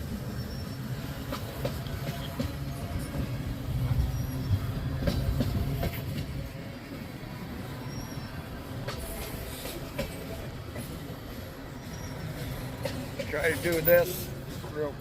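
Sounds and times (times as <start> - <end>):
freight train rumbling past: 0.0 - 15.0
wheels clicking over rail joints: 12.0 - 14.8.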